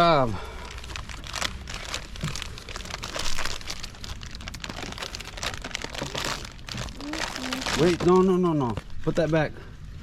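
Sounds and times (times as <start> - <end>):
hands rustling and crinkling: 0.6 - 9.5.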